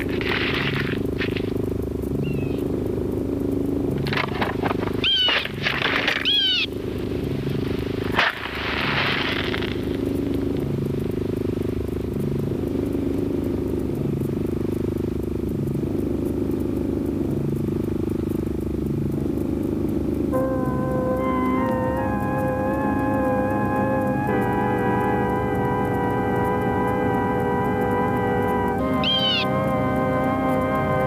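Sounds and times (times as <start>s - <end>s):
car engine idling: 0.0s - 31.0s
short pitched calls: 2.2s - 2.7s, 5.0s - 6.8s, 28.8s - 29.7s
hiss: 7.5s - 10.0s.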